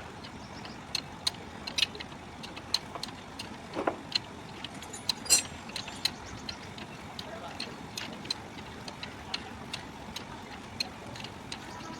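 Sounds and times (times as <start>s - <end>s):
tools clicking and tapping: 0.2s - 11.9s
ringing metal clink: 4.7s - 6.1s.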